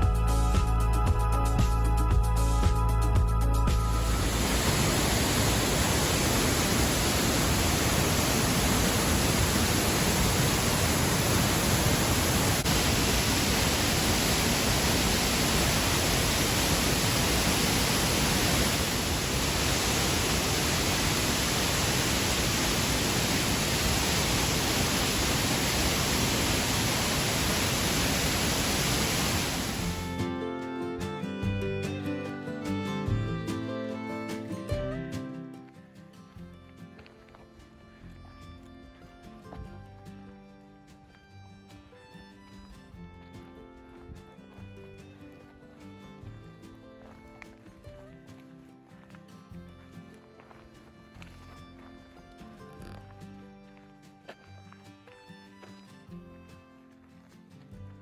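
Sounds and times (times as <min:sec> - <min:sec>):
waterfall rushing: 0:03.8 - 0:30.4.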